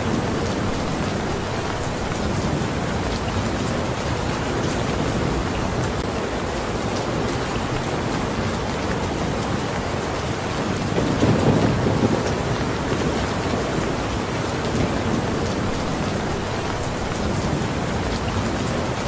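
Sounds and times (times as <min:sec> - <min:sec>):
rain hissing: 0:00.0 - 0:06.4, 0:11.2 - 0:19.0
raindrops ticking on surface: 0:00.0 - 0:19.0.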